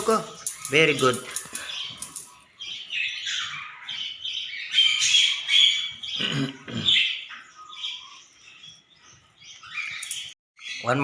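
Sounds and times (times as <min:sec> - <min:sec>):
budgerigar chattering and squawking: 0:00.1 - 0:08.5.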